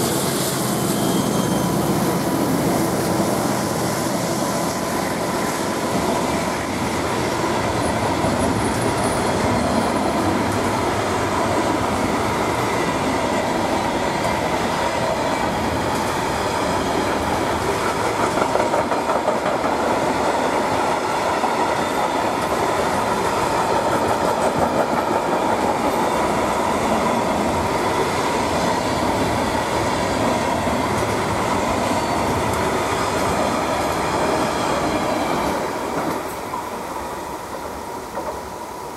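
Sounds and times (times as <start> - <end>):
ringing tone of rails: 0.0 - 19.8, 20.4 - 38.9
freight train wheels rolling on rails: 0.0 - 38.9.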